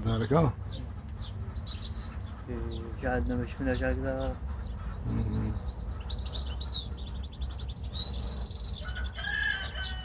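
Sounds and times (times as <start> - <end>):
finch twittering song: 0.0 - 10.0
rooster crowing: 8.8 - 10.0.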